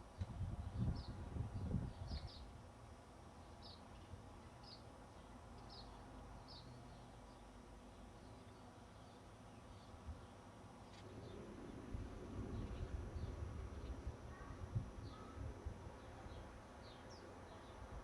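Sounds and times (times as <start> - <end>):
faint low rumble: 10.9 - 18.0.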